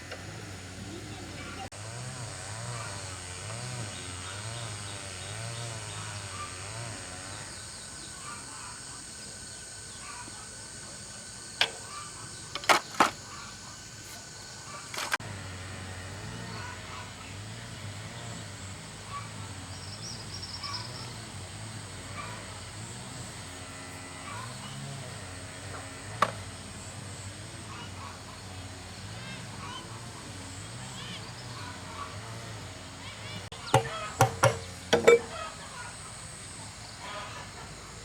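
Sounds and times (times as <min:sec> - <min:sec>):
sharp knocks: 0:33.7 - 0:35.4.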